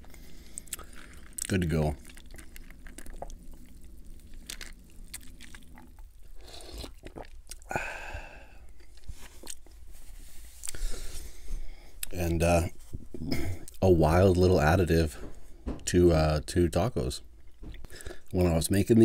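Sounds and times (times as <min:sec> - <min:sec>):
crunchy chewing: 0:00.0 - 0:07.7, 0:08.7 - 0:09.8
drink sipped and swallowed: 0:00.0 - 0:07.8.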